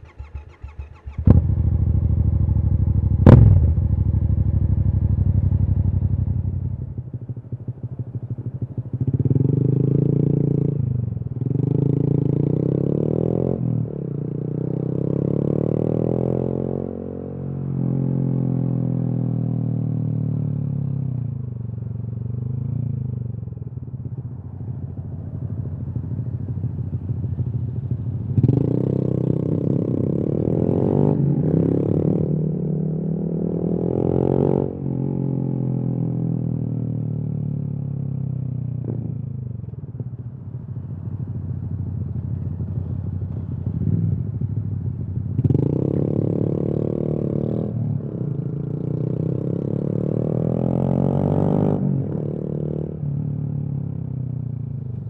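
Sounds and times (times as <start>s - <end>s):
motorcycle engine revving: 0.0s - 6.6s, 42.4s - 52.8s.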